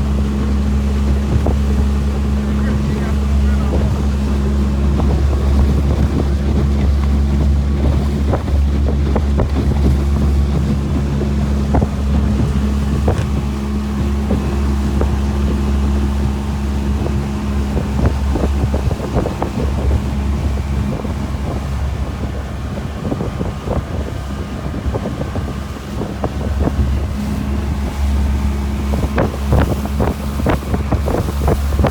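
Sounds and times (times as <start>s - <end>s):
motorboat engine droning: 0.0s - 31.9s
wind on microphone: 0.0s - 31.9s
short knocks and slaps: 11.7s - 13.5s.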